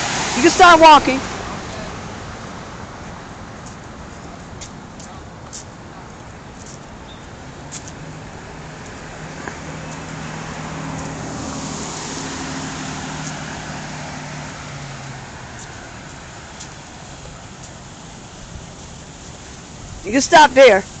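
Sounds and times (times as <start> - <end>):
vehicle passing by: 0.0 - 3.5, 7.6 - 20.8.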